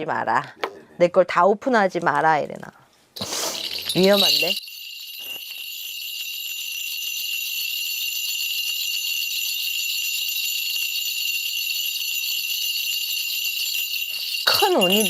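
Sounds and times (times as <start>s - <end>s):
ritual bell cluster jingling: 3.2s - 15.0s.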